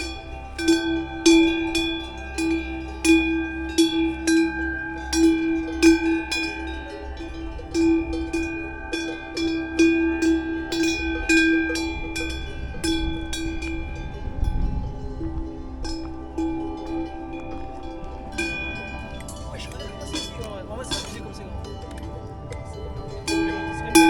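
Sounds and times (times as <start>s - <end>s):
cowbells clanking: 0.0s - 24.0s.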